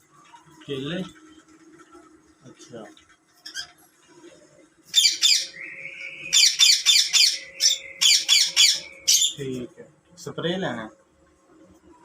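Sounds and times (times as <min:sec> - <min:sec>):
baby parrot squawking: 0:05.0 - 0:05.6, 0:06.3 - 0:09.4.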